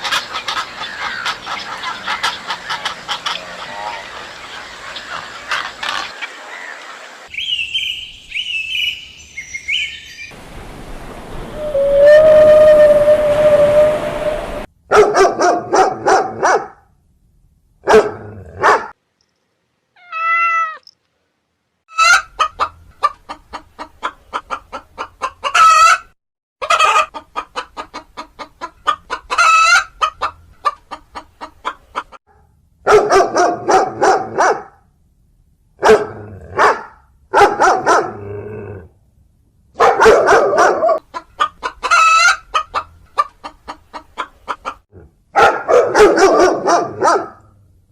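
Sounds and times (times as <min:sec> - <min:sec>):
hens clucking and cackling: 0:00.0 - 0:07.0, 0:21.9 - 0:32.2, 0:41.0 - 0:44.8
rooster crowing: 0:11.6 - 0:14.7.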